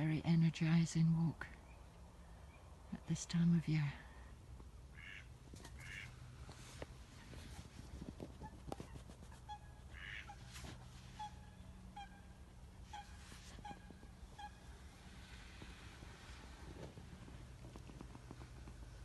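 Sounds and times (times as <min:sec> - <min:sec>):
low steady hum: 0:00.0 - 0:19.0
distant waterfowl honking: 0:04.9 - 0:06.3, 0:08.4 - 0:17.2.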